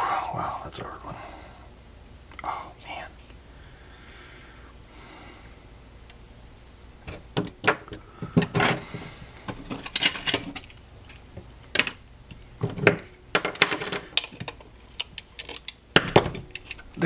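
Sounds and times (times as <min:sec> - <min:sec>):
plastic parts clicking and clattering: 0:09.5 - 0:12.0, 0:12.6 - 0:17.0.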